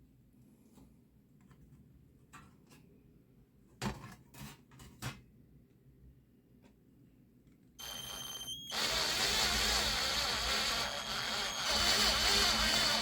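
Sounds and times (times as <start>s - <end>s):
electric drill motor whine: 7.8s - 13.0s
drill bit grinding metal: 8.7s - 13.0s.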